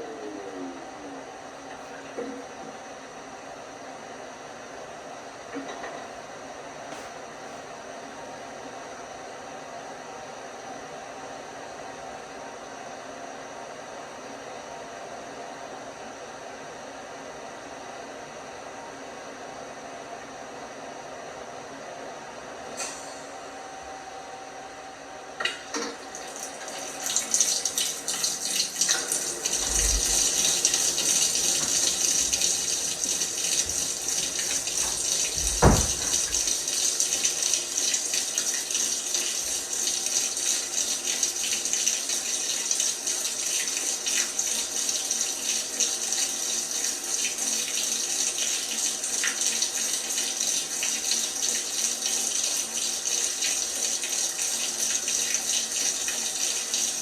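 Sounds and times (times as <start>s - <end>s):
water rushing into drum: 28.6s - 37.2s
low thump: 35.4s - 36.3s.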